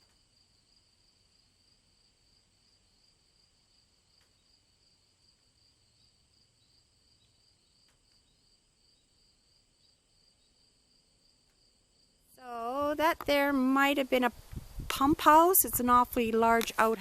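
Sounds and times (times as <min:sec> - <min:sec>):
insect trill: 0:00.0 - 0:13.0
faint ticks: 0:04.1 - 0:04.6, 0:07.2 - 0:08.4, 0:11.4 - 0:11.7.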